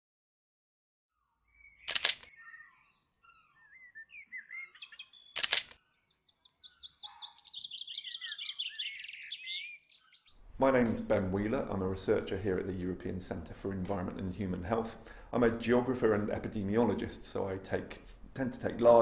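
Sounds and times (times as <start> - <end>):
small birds chirping: 1.1 - 11.0
sharp clicks: 1.8 - 2.3, 5.3 - 5.8.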